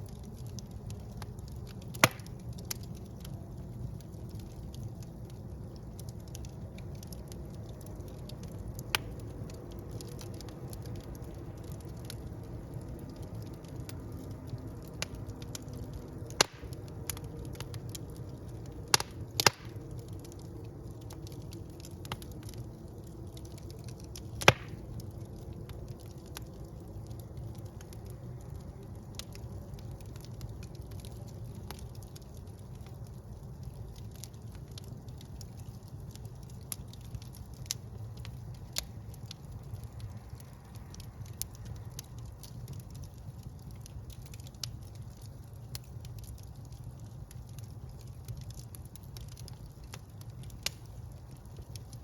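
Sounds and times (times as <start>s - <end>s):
fire crackling: 0.0s - 52.0s
fire flames rumbling: 0.0s - 52.0s
sharp wood pops: 1.9s - 2.3s, 16.4s - 16.7s, 19.0s - 19.8s, 24.4s - 24.8s.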